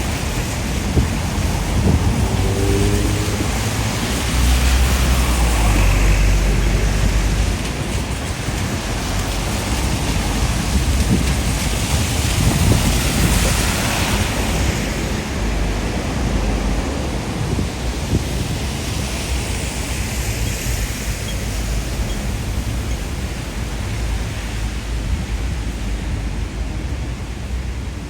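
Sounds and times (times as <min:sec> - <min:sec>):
rain: 0:00.0 - 0:28.0
strong wind: 0:00.0 - 0:28.0.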